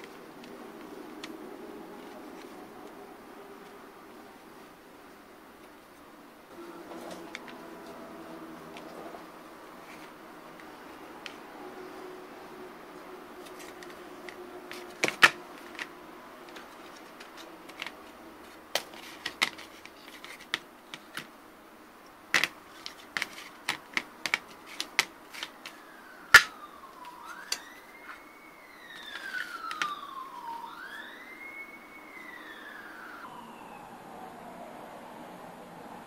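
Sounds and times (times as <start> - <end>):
siren wailing: 6.5 - 17.0, 25.4 - 36.0.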